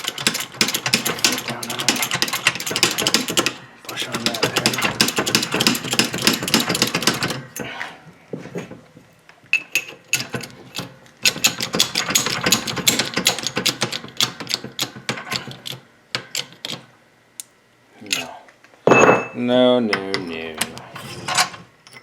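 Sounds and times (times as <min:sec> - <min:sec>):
metal tools clicking and rattling: 0:00.0 - 0:07.7, 0:09.6 - 0:16.8, 0:18.1 - 0:22.0.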